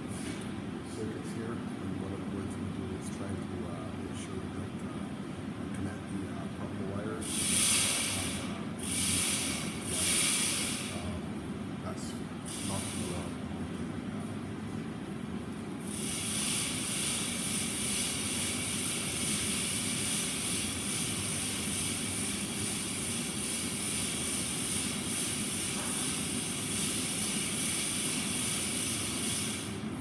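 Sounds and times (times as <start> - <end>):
high hiss: 7.2 - 11.1.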